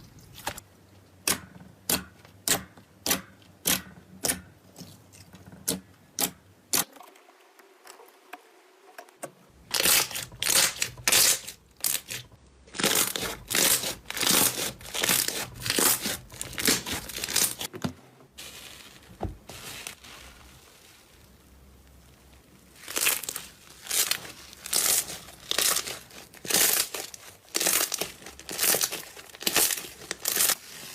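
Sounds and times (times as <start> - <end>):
slime crackling and popping: 9.7 - 17.7, 18.4 - 30.9.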